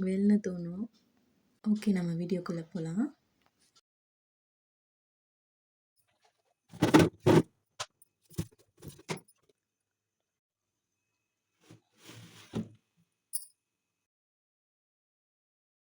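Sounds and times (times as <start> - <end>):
loud knocks of objects set down: 6.8 - 7.5.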